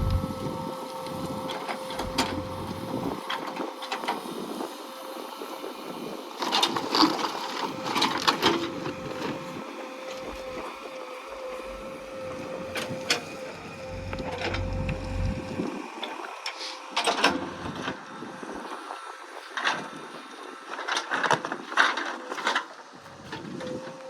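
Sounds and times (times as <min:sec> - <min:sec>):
machinery clanks and rattles: 0:00.0 - 0:03.6, 0:11.5 - 0:15.7
machinery whine: 0:00.0 - 0:24.0.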